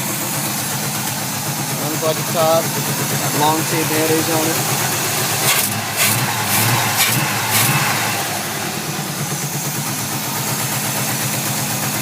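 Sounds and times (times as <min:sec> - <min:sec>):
engine revving and idling: 0:00.0 - 0:12.0.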